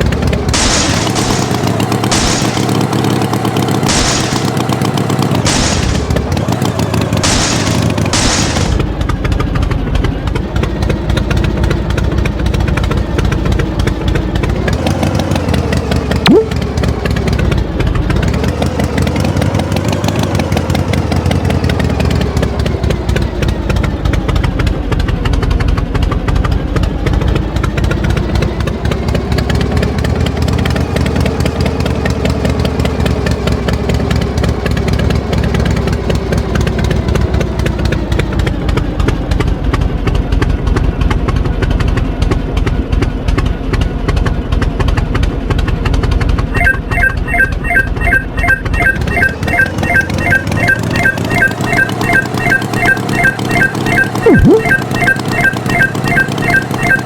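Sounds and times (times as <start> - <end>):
tractor engine revving: 0.0 - 24.4.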